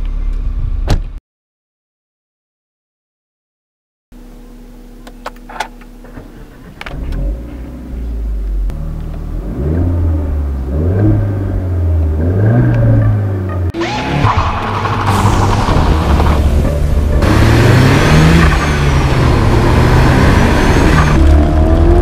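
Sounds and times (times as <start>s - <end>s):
car engine starting and revving: 6.0s - 22.0s.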